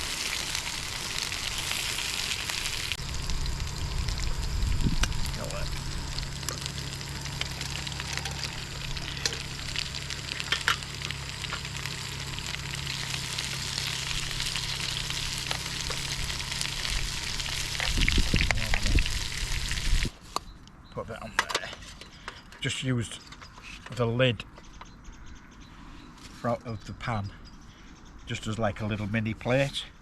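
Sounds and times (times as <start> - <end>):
burgers sizzling in a pan: 0.0 - 20.1
gas burner humming: 0.0 - 20.1.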